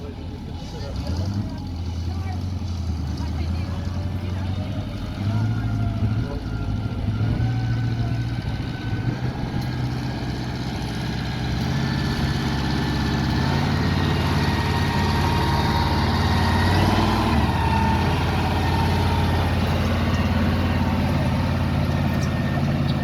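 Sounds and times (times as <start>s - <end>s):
tractor engine droning: 0.0s - 23.0s.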